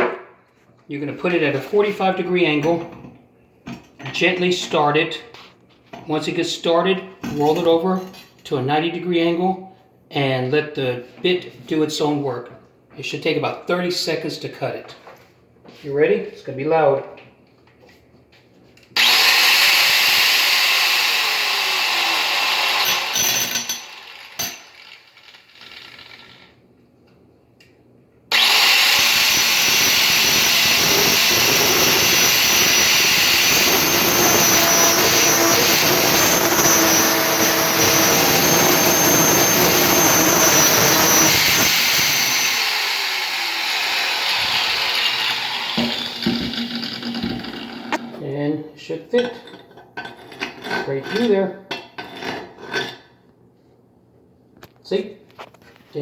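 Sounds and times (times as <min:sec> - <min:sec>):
grinder cutting ceramic: 0:19.0 - 0:26.6, 0:28.3 - 0:48.2.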